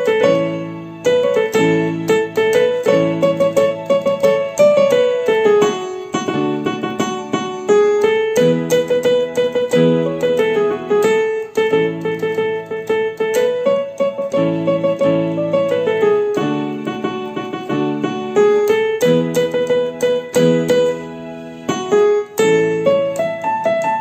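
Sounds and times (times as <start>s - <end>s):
electronic keyboard melody: 0.0s - 24.0s.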